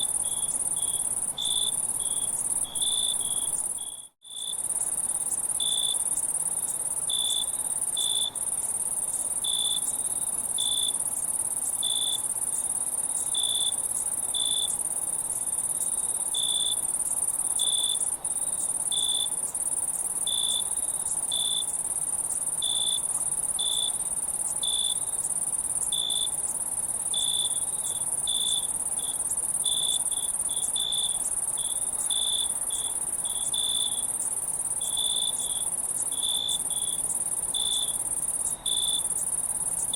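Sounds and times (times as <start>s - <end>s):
cricket chirping: 0.0s - 39.9s
high-pitched insect trill: 0.0s - 39.9s.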